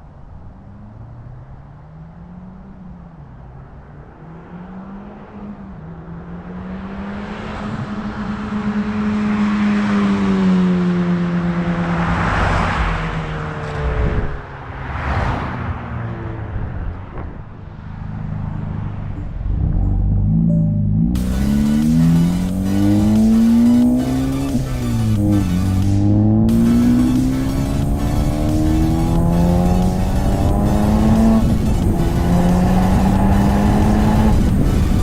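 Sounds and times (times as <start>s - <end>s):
car exhaust roaring: 15.7s - 35.0s.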